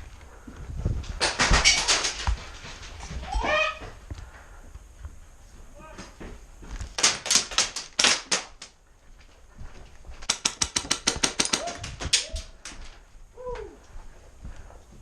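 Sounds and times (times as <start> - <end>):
airsoft guns firing: 7.0 - 8.7, 10.2 - 12.4.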